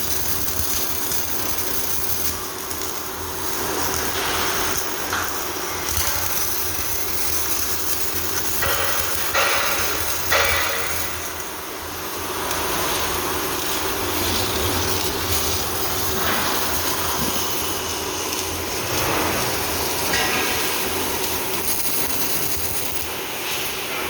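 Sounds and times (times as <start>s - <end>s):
welding workshop hissing din: 0.0s - 24.0s.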